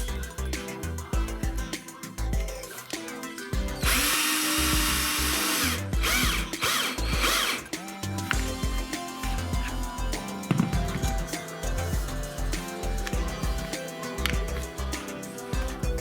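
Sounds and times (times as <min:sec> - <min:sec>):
background music: 0:00.0 - 0:16.0
power drill running: 0:03.8 - 0:07.7.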